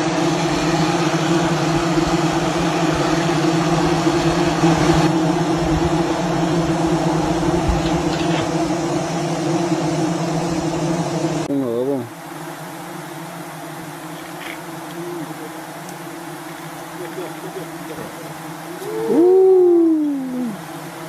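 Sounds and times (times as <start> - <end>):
honeybees buzzing: 0.0 - 21.0.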